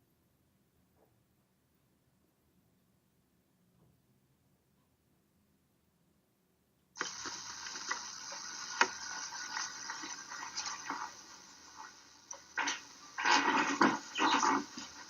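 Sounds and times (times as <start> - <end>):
water running: 7.0 - 15.0.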